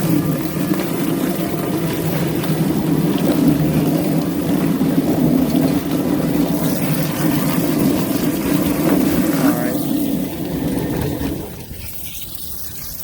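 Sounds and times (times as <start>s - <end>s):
chicken plucker machine droning: 0.0s - 11.8s.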